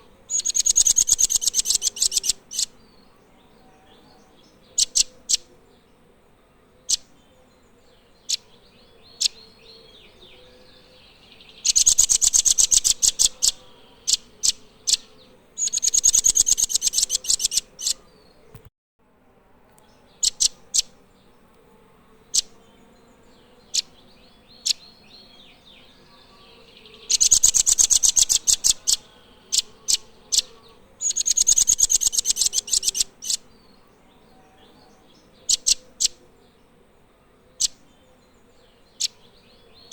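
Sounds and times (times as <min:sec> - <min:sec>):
bird high trills: 0:00.3 - 0:02.7, 0:11.6 - 0:18.0, 0:26.9 - 0:33.4.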